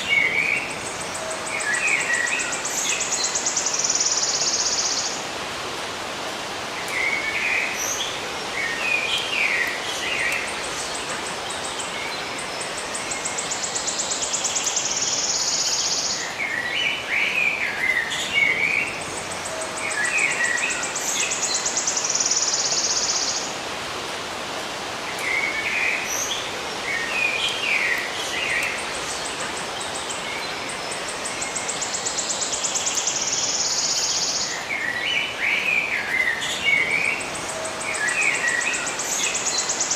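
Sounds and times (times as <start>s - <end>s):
small birds chirping: 6.8s - 23.7s, 25.0s - 39.9s.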